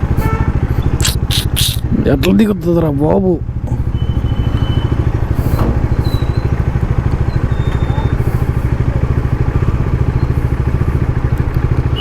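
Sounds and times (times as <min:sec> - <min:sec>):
motorcycle engine running: 0:00.0 - 0:12.0
brief burst of noise: 0:01.0 - 0:01.8.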